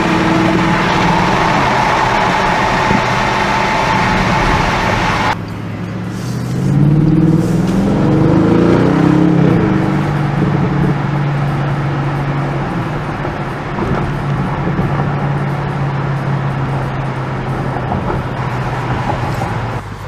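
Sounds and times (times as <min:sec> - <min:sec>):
car engine droning: 0:00.0 - 0:20.0.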